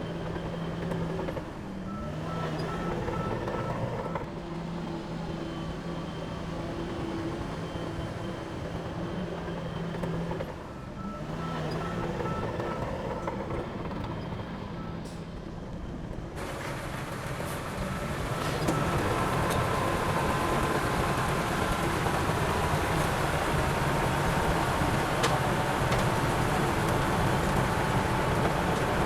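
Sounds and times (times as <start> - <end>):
heavy diesel machinery running: 0.0 - 29.0
reversing alarm beeping: 5.4 - 15.2.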